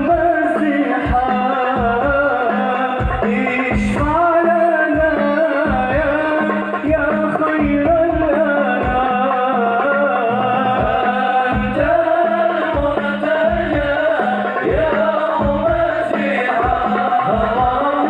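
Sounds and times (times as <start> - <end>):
drum strokes: 0.0 - 18.0
man singing melismatic lines: 0.0 - 18.0.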